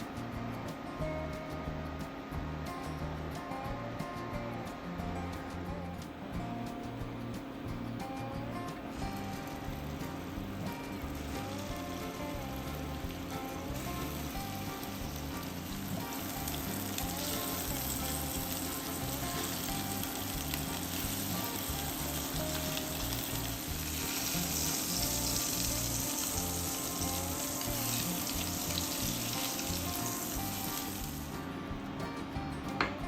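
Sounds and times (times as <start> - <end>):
background music: 0.0 - 33.0
food sizzling in a pan: 9.0 - 31.4.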